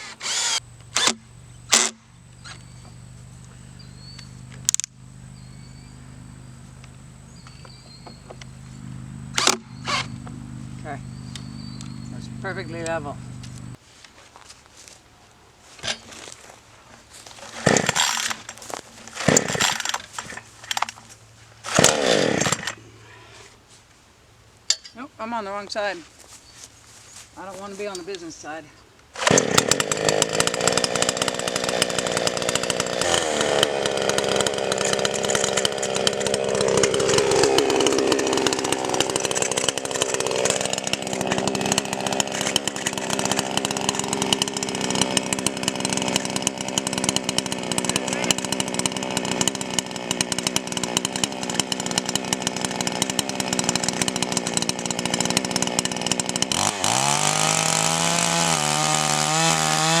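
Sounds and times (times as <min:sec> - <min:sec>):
chainsaw cutting log: 0:00.0 - 0:13.8, 0:17.1 - 0:23.1, 0:27.4 - 1:00.0.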